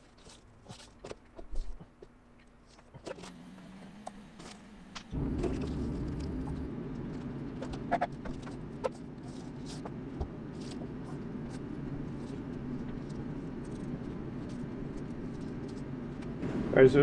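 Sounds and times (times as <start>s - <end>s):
steady low hum: 3.0s - 17.0s
paper crinkling: 5.6s - 16.4s.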